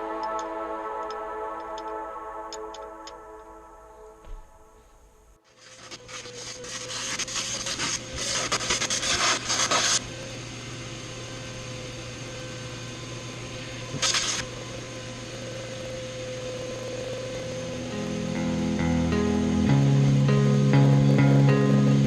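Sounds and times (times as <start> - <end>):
steady hum: 0.0 - 22.0
tool rasping against surface: 5.6 - 10.0.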